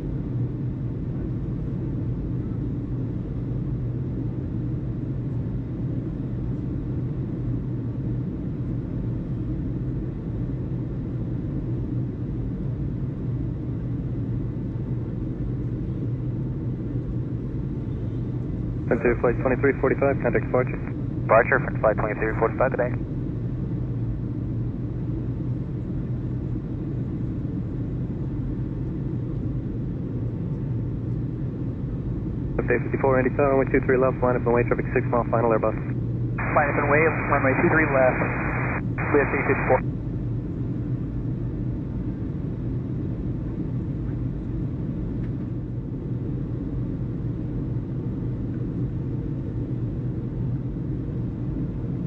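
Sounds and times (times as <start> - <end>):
constant low hum: 0.0 - 52.0
low rumble: 32.6 - 39.8
faint hiss: 36.4 - 39.8.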